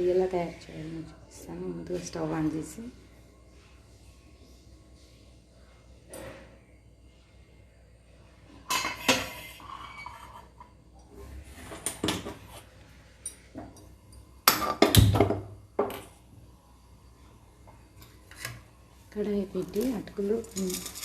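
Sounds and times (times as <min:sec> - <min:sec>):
metal pots clanking and scraping: 0:08.6 - 0:10.7, 0:19.7 - 0:21.0.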